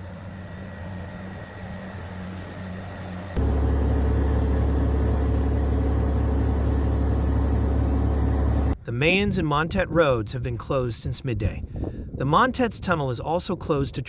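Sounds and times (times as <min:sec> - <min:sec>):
deep engine rumble: 0:03.4 - 0:08.8
vehicle engine running: 0:03.4 - 0:08.8.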